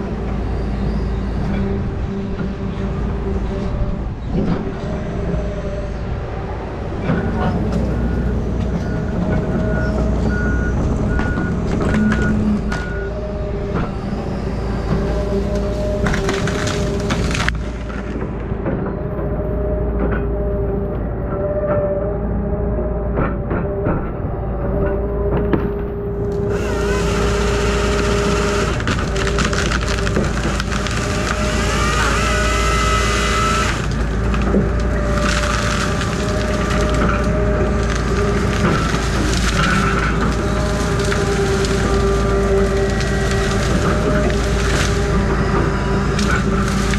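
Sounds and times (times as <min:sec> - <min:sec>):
heavy truck engine running: 0:00.0 - 0:21.1, 0:22.4 - 0:46.9
reversing alarm beeping: 0:07.1 - 0:16.5, 0:36.6 - 0:46.9
saw cutting through tree: 0:13.9 - 0:17.6, 0:26.3 - 0:46.9.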